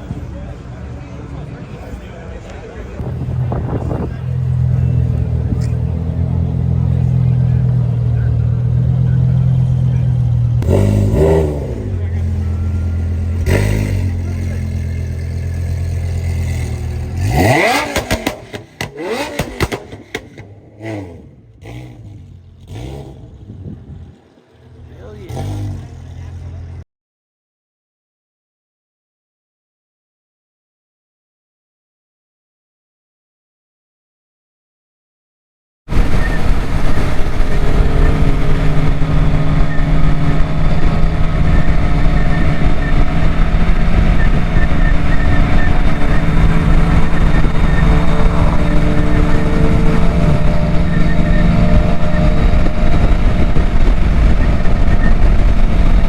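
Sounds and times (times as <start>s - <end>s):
engine throttle blips: 0.0s - 26.8s, 35.9s - 56.0s
engine idling: 0.3s - 10.6s
engine revving: 3.0s - 26.8s, 35.9s - 56.0s.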